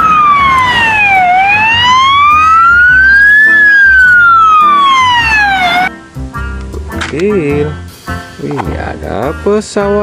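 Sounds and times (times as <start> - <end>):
toy siren wailing: 0.0 - 5.9.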